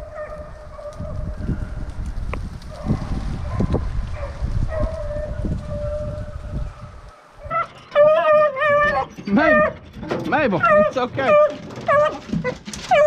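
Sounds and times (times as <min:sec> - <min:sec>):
low rumbling noise: 0:00.0 - 0:07.6
dog whining: 0:07.4 - 0:09.8, 0:10.6 - 0:13.0.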